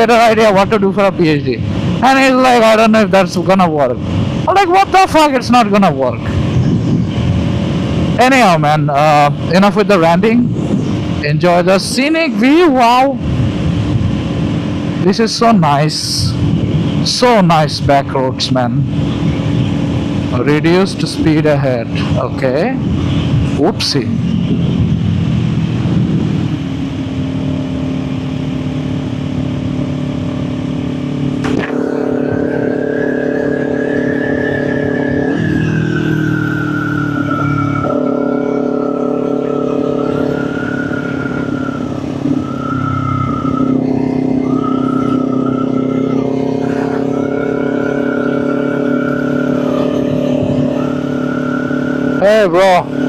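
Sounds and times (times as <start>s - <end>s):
motorcycle engine running: 24.3s - 35.3s
high steady tone: 31.4s - 53.0s.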